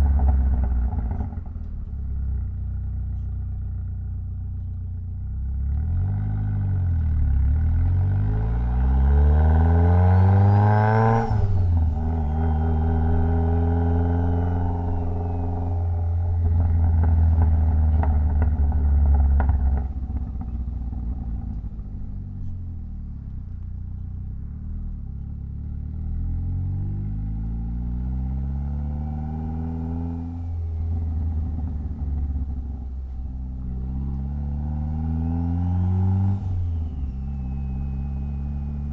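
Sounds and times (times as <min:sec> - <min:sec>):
car engine accelerating: 0:00.0 - 0:38.9
faint turbo whistle: 0:11.1 - 0:17.1, 0:35.7 - 0:38.9.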